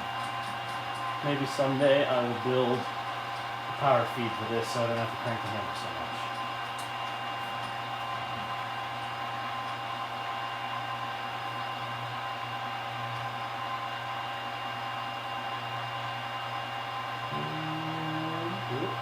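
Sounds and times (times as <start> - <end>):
milling machine motor humming: 17.1 - 19.0.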